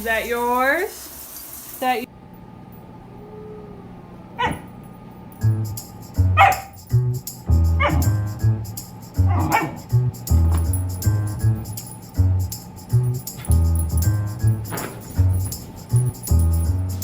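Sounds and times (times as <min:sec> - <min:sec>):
dog barking: 0:04.4 - 0:04.8, 0:06.4 - 0:06.8, 0:07.8 - 0:08.1, 0:09.3 - 0:09.8
background music with steady beat: 0:05.4 - 0:17.0.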